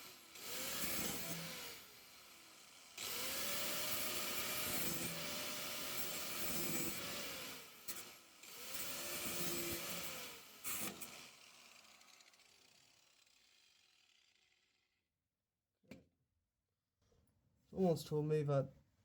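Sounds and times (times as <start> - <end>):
power tool grinding sheet metal: 0.0 - 13.5.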